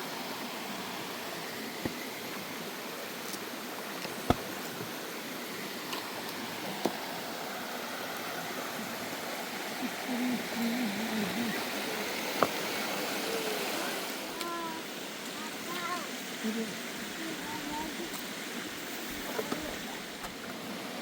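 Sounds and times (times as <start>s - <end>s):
rushing outdoor noise: 0.0s - 21.0s
wavering low voice-like sound: 9.7s - 12.2s.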